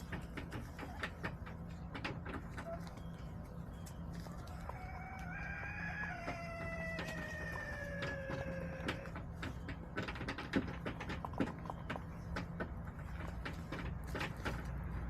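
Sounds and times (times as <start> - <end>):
rooster crowing: 4.4 - 9.1.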